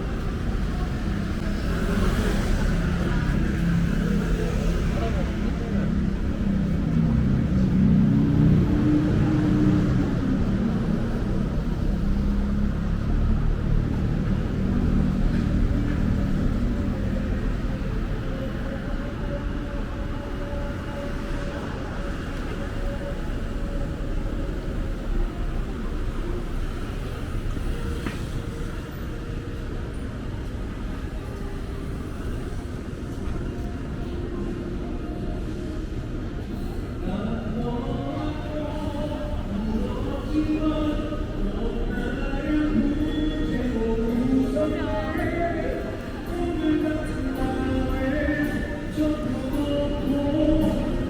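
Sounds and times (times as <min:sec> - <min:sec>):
traffic rumble: 0:00.0 - 0:51.0.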